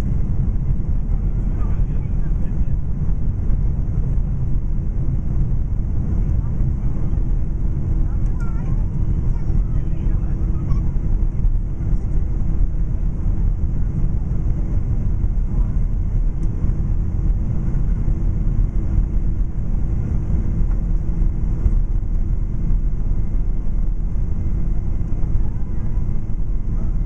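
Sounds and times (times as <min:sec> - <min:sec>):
constant hum: 0:00.0 - 0:27.0
jet cabin engine rumble: 0:00.0 - 0:27.0.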